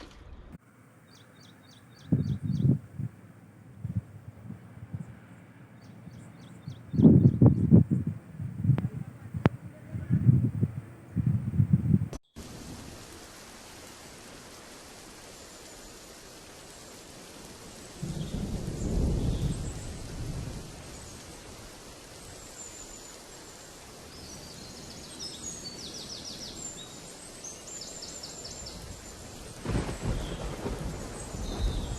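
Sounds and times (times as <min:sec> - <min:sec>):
steady outdoor hiss: 0:00.0 - 0:31.9
small birds chirping: 0:01.0 - 0:03.1, 0:04.5 - 0:11.3, 0:17.8 - 0:21.5, 0:22.1 - 0:31.9.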